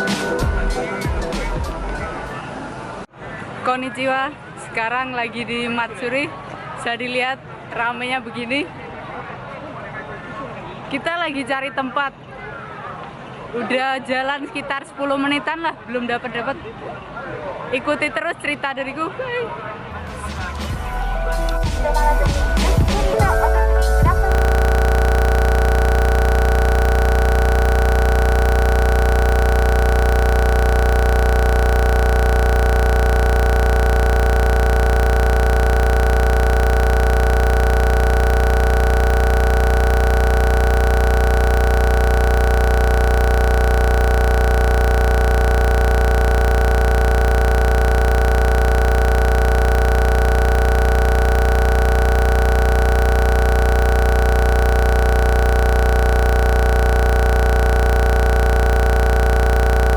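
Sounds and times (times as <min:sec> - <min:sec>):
electronic buzz with low hum: 0:00.0 - 0:02.3, 0:20.8 - 0:59.9.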